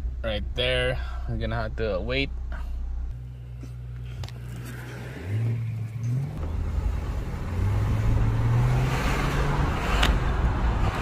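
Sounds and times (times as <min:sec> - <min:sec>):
road noise: 0:00.0 - 0:11.0
car engine accelerating: 0:03.0 - 0:11.0
metal-to-metal drivetrain growl: 0:03.6 - 0:11.0.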